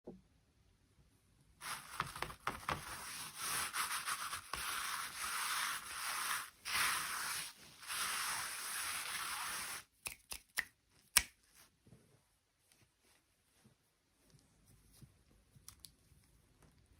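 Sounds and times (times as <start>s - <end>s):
hands rubbing toy packaging: 1.6s - 10.1s.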